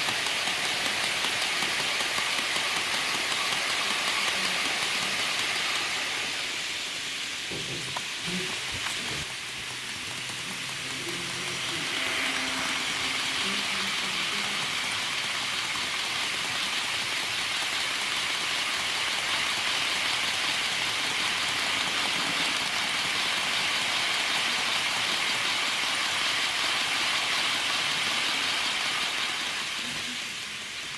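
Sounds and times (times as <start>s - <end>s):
model train rolling on track: 0.0s - 30.9s.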